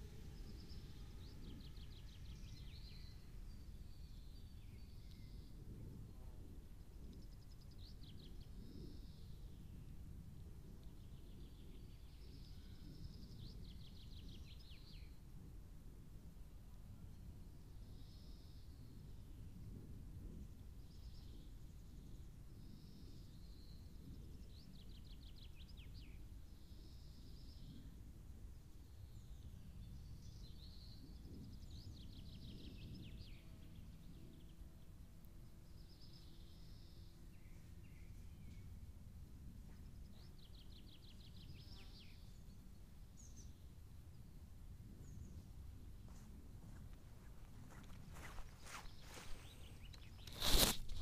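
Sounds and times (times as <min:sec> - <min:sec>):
low steady rumble: 0:00.0 - 0:17.9
faint birdsong: 0:00.0 - 0:51.0.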